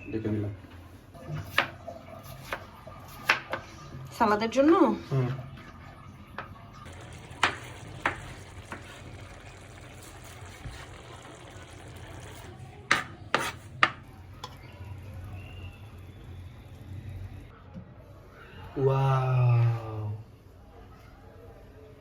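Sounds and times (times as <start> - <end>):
kitchen utensils knocking: 12.8 - 14.6.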